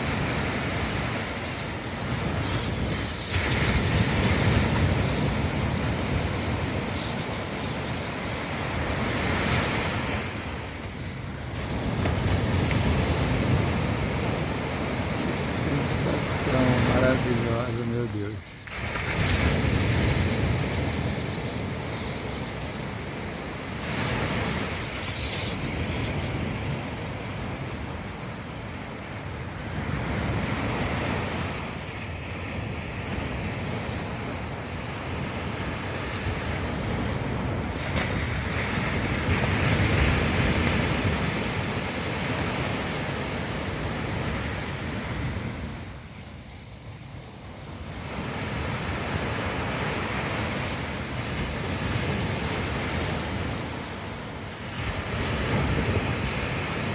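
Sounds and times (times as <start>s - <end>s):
wind rumbling on microphone: 0.0s - 46.4s
waves breaking on beach: 0.0s - 56.9s.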